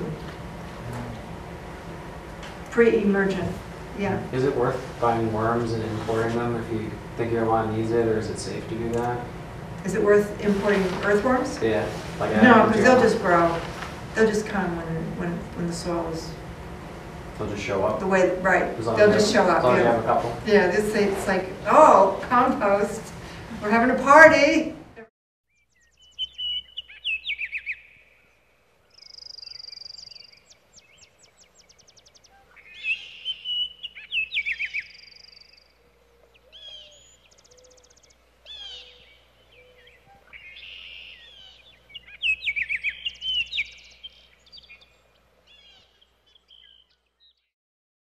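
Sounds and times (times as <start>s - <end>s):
birds singing and trilling: 16.2s - 22.0s, 25.5s - 47.5s.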